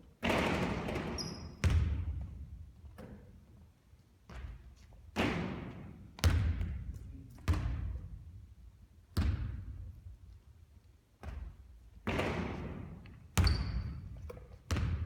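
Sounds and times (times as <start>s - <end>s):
basketball thuds: 14.7s - 15.0s.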